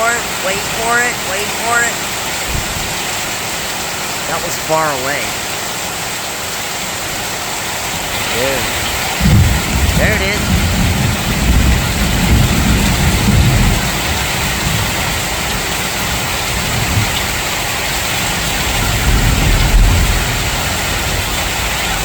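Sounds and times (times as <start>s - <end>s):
steady rain falling: 0.0s - 22.0s
distant thunder rumble: 2.3s - 3.4s, 8.2s - 22.0s.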